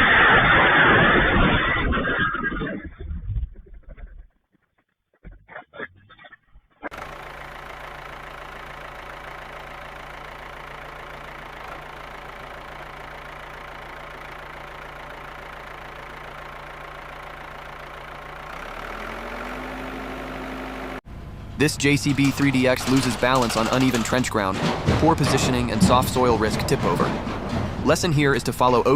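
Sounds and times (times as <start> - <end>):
vehicle engine idling and revving: 6.9 - 28.9.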